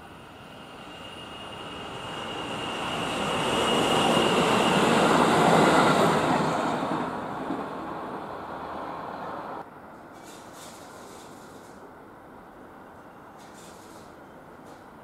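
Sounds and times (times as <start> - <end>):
electric train passing: 0.0 - 9.9.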